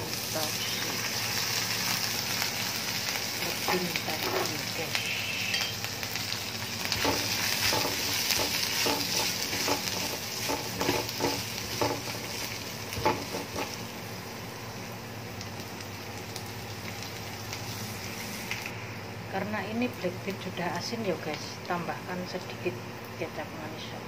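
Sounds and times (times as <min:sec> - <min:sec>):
food sizzling in hot oil: 0:00.0 - 0:23.1
spatula scraping a pan: 0:07.0 - 0:12.2.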